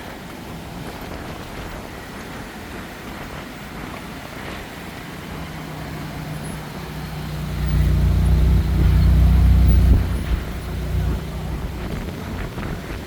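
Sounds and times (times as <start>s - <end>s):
vehicle engine passing by: 4.9s - 13.0s.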